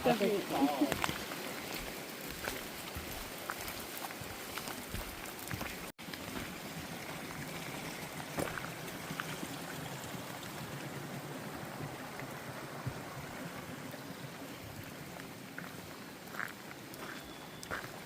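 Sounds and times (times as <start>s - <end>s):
creek water running: 0.0s - 18.0s.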